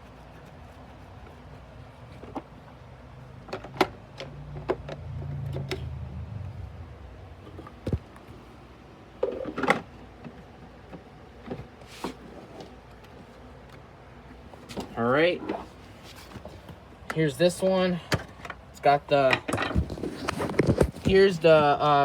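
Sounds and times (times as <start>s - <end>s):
low rumble: 4.8s - 8.7s.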